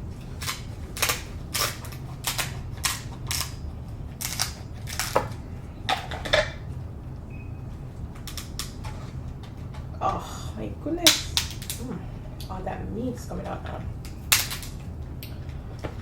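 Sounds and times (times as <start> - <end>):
close-miked chewing and crunching: 0.0 - 10.0.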